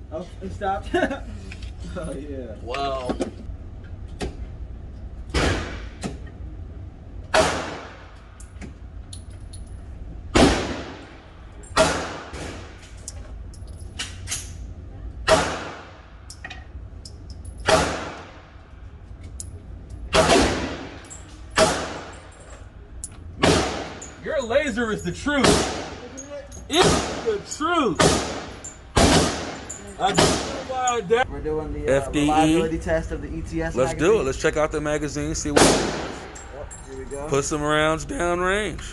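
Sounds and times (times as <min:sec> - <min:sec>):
pistol gunshots: 0:07.3 - 0:08.1, 0:10.3 - 0:11.1, 0:11.7 - 0:12.8, 0:15.2 - 0:16.0, 0:17.6 - 0:18.4, 0:20.1 - 0:22.2, 0:23.4 - 0:24.0, 0:25.4 - 0:26.0, 0:26.8 - 0:27.3, 0:28.0 - 0:30.6, 0:35.5 - 0:36.3.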